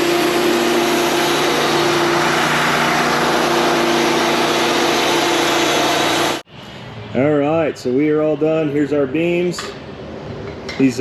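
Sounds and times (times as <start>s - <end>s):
forklift engine running: 0.0s - 6.4s.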